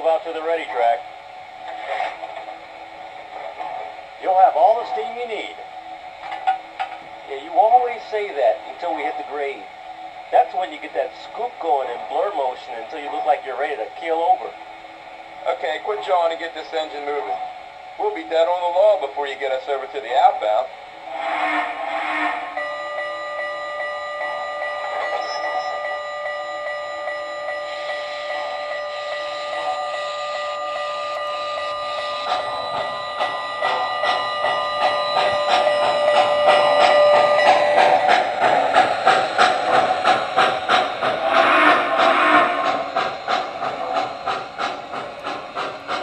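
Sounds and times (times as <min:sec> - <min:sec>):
steam locomotive chuffing: 0:00.0 - 0:46.0
multi-tone steam whistle: 0:21.0 - 0:44.7
steam hiss: 0:30.9 - 0:46.0.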